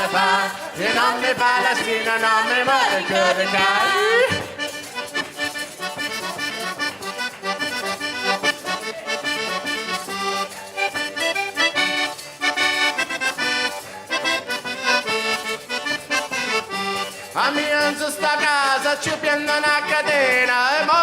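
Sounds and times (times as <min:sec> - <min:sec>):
accordion playing folk tune: 0:00.0 - 0:21.0.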